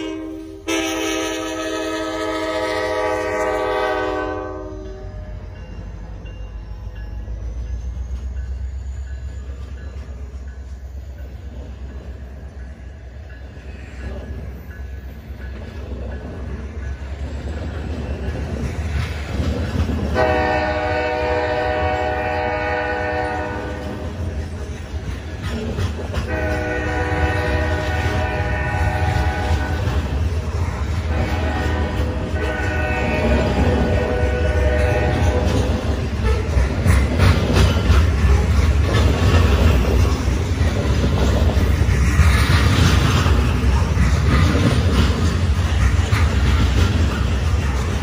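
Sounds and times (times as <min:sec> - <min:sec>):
locomotive horn blast: 0:00.0 - 0:05.4, 0:20.2 - 0:24.2, 0:26.2 - 0:30.0, 0:31.0 - 0:36.5
train cars rumbling on rails: 0:00.0 - 0:48.0.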